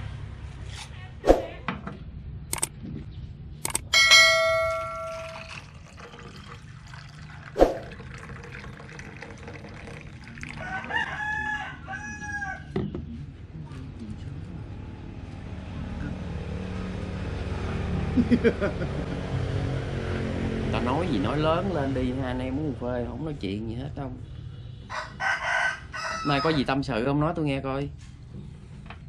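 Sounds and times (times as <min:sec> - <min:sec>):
steady ringing tone: 0:03.8 - 0:06.5
rooster crowing: 0:10.5 - 0:12.8, 0:24.9 - 0:26.8.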